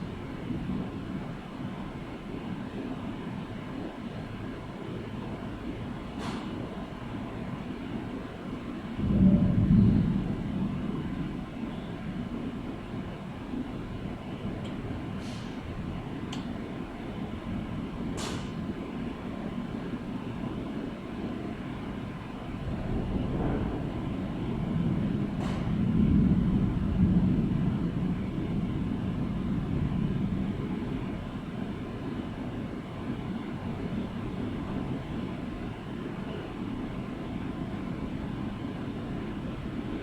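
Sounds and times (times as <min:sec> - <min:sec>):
thunder rumbling: 0:08.8 - 0:15.1, 0:22.0 - 0:36.0
sharp thunder crackles: 0:09.0 - 0:11.6, 0:22.6 - 0:31.0.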